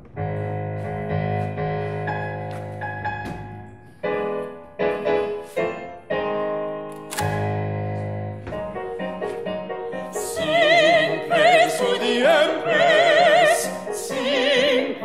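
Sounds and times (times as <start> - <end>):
piano playing hymn chords: 0.0 - 15.0.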